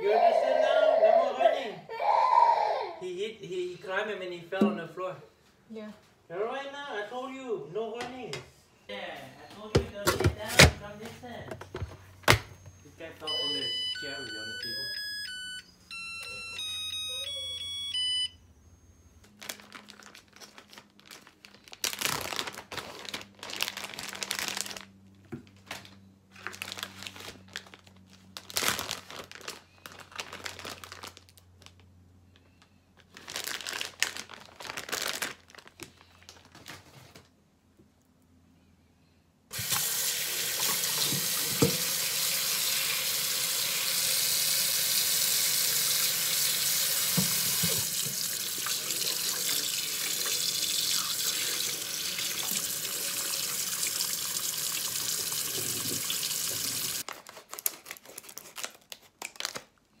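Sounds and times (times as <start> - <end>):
tap running into sink: 39.6 - 42.4, 46.0 - 50.4, 54.8 - 57.0.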